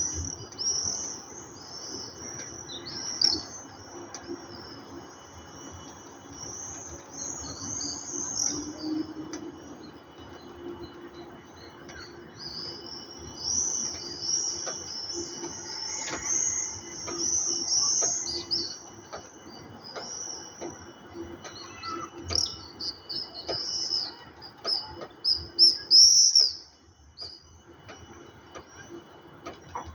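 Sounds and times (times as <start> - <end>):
birds chirping: 10.2 - 27.6.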